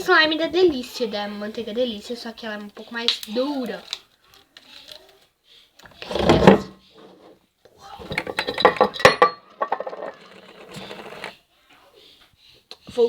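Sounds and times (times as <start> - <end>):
hard objects clattering: 5.8 - 7.4, 8.0 - 11.4.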